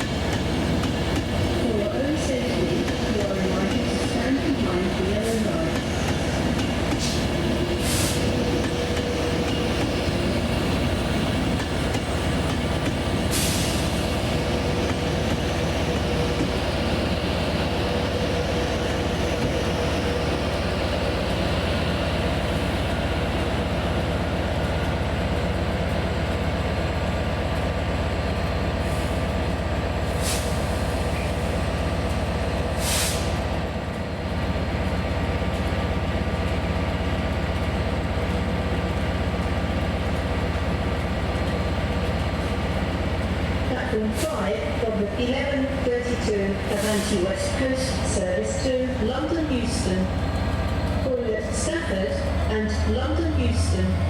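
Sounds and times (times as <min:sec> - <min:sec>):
train rumble: 0:00.0 - 0:54.0
short high hisses: 0:32.8 - 0:33.4.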